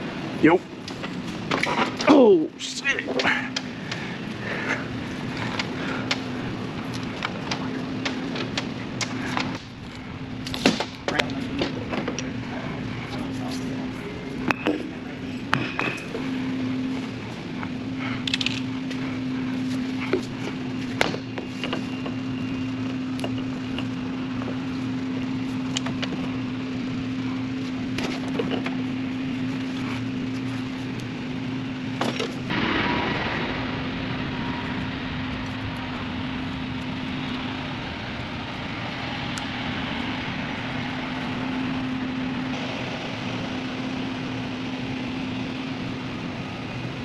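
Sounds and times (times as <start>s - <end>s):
engine running drone: 0.0s - 47.0s
sharp clicks and knocks: 5.4s - 9.8s
hissing rush: 32.5s - 47.0s.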